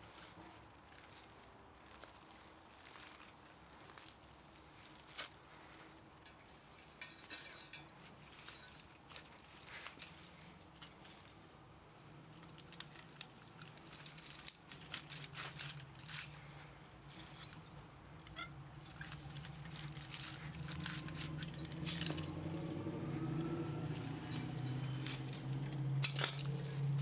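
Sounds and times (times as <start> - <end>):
scrap metal and wire clicking: 4.9 - 11.4, 12.4 - 27.0.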